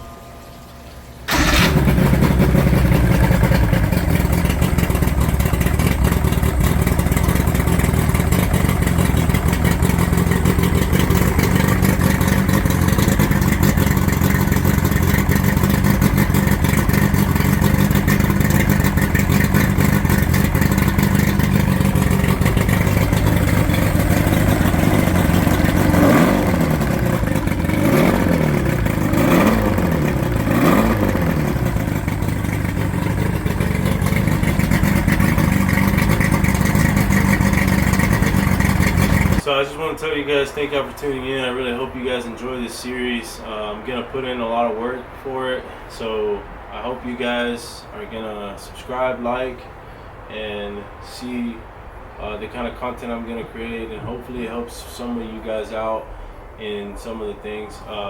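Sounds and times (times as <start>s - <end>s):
outboard motor running: 1.3s - 39.4s.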